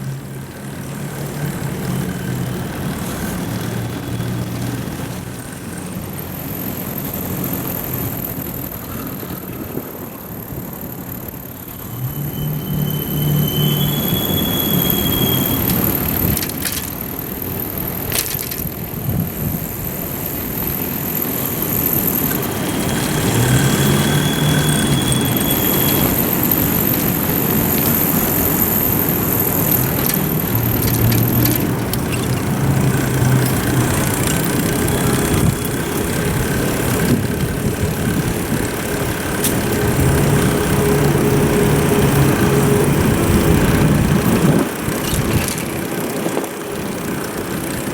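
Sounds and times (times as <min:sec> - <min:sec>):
road noise: 0:00.0 - 0:47.9
rushing wind: 0:02.5 - 0:47.9
sharp clicks and rattles: 0:14.8 - 0:47.9.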